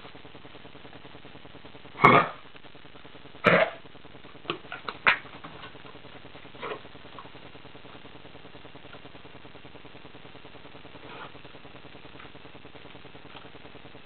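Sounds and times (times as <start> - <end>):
dog coughing: 2.0 - 2.4, 3.4 - 3.8.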